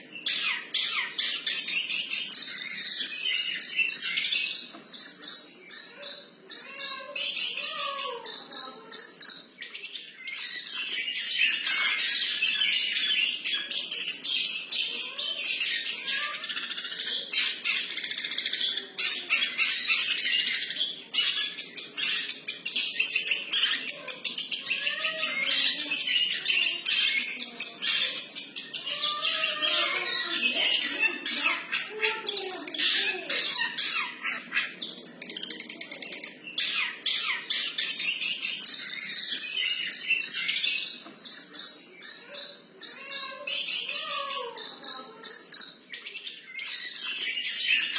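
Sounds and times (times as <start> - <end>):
bird singing chattering song: 0.0 - 47.9.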